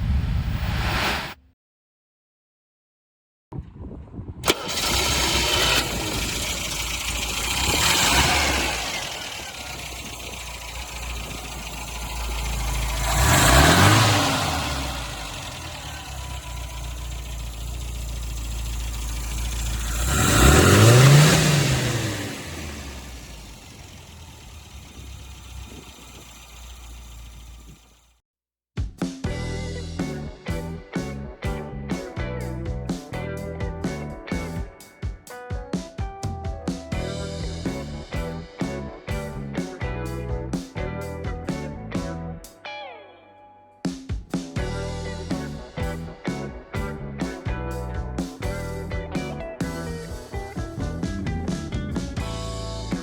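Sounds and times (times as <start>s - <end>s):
car engine starting and revving: 4.4s - 28.1s, 36.9s - 40.3s, 44.6s - 53.0s.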